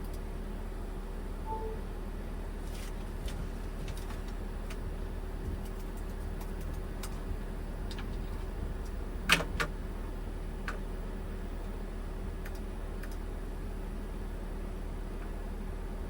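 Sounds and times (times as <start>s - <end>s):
low machine hum: 0.0s - 16.0s
short beep: 1.4s - 2.0s
light clicks and taps: 12.4s - 13.2s.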